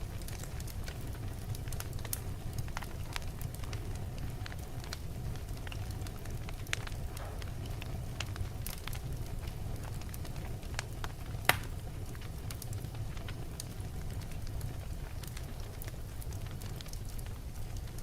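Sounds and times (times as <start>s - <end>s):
fire rumbling and crackling: 0.0s - 18.0s
loud pop of fire: 5.6s - 12.6s.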